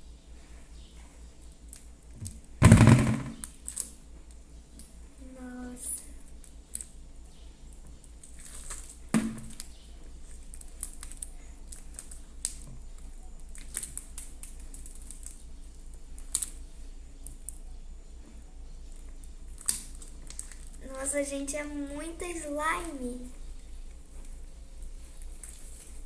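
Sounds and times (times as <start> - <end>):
slime kneaded with wet clicks: 19.0 - 20.8.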